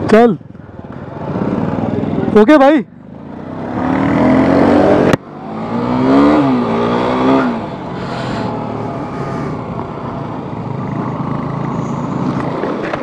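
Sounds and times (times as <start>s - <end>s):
motorcycle engine accelerating: 3.1s - 13.0s.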